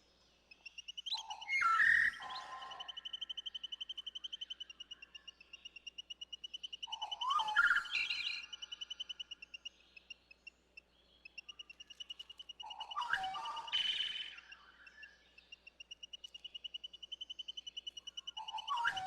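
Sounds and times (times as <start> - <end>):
fast bird trill: 11.3 - 19.0
bird calls with sliding notes: 11.4 - 15.2, 16.1 - 19.0.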